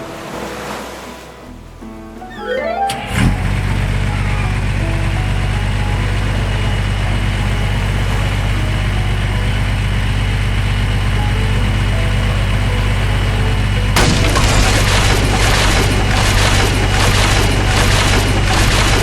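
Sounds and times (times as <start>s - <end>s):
heavy vehicle engine idling: 2.9s - 19.0s
loud noisy crash: 14.0s - 19.0s.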